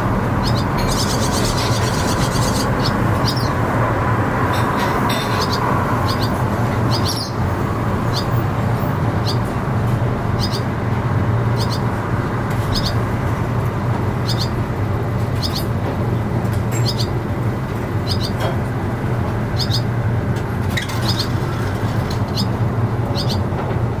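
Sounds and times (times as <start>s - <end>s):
swallows chirping: 0.0s - 9.6s, 10.3s - 10.8s, 11.4s - 13.1s, 14.1s - 14.6s, 15.3s - 15.8s, 16.8s - 17.2s, 18.0s - 18.5s, 19.4s - 20.0s, 20.7s - 23.5s
low rumble of traffic: 0.0s - 24.0s.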